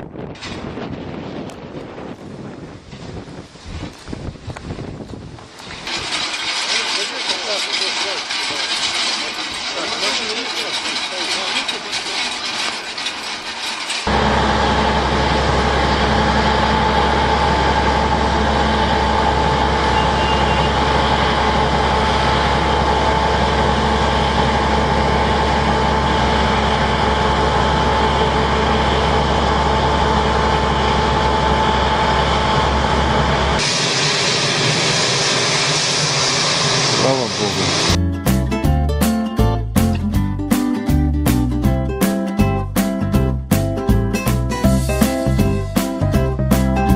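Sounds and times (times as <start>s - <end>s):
loud engine whining: 5.6s - 38.0s.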